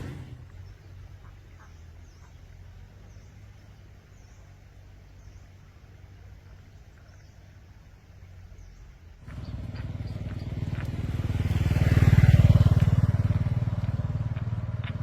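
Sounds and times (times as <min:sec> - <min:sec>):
small engine running: 0:00.0 - 0:00.5, 0:09.2 - 0:15.0.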